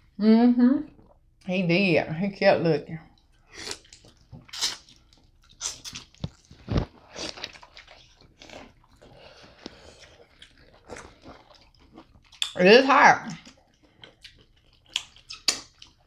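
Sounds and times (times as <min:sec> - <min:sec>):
people chewing food: 0:03.0 - 0:16.0
wet mouth smacks: 0:14.9 - 0:15.8.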